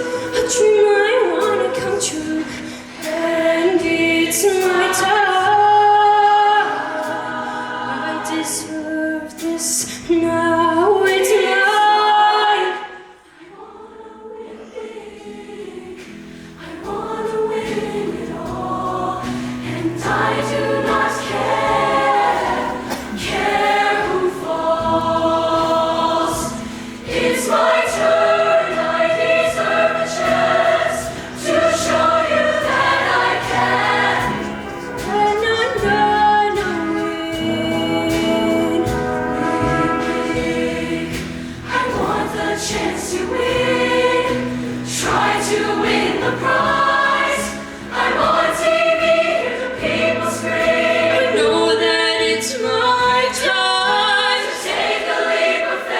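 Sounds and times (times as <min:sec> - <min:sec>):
choir singing in harmony: 0:00.0 - 0:55.9.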